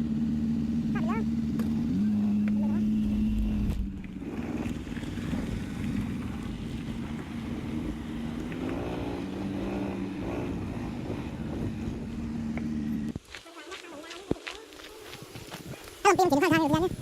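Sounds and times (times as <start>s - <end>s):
vehicle engine humming: 0.0s - 13.3s.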